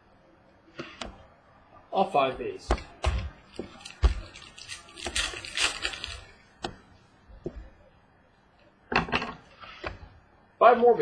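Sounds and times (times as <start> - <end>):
card wrappers rustling: 3.6 - 6.4.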